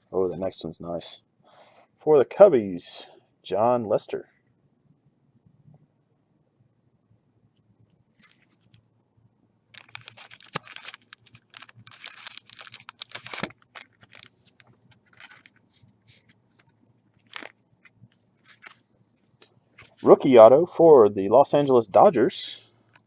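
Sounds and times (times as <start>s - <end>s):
plastic packaging crinkling: 8.1s - 8.9s, 9.7s - 18.9s.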